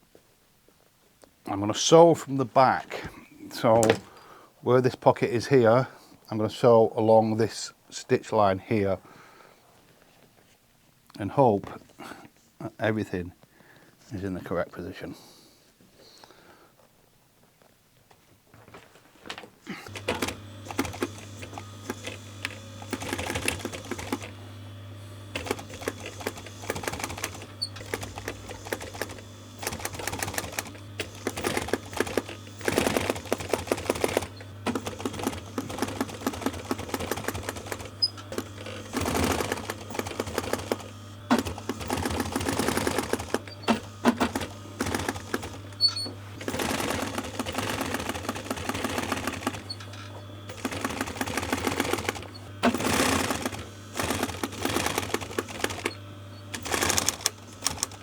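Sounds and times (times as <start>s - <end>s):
sewing machine stitching: 3.6s - 4.1s, 19.7s - 58.0s.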